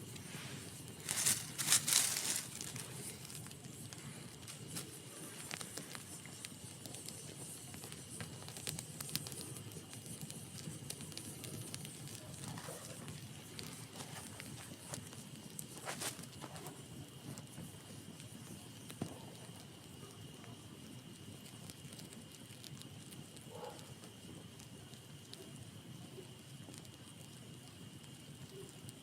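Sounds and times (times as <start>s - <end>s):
campfire crackling: 0.0s - 29.0s
fire pops and snaps: 0.0s - 29.0s
hissing rush of crackle: 0.0s - 29.0s.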